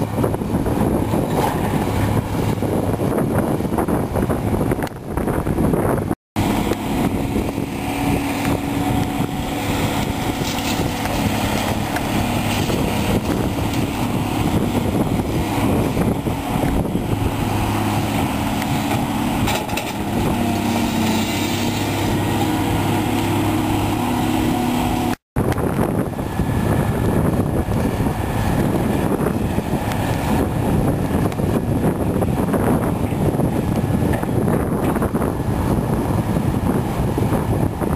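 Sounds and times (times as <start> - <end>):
excavator diesel engine under load: 5.7 - 37.9.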